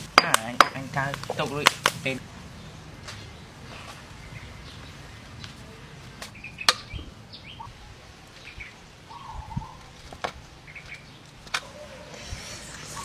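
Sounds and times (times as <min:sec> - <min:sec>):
steady low background noise: 0:00.0 - 0:13.0
small birds chirping: 0:01.2 - 0:13.0.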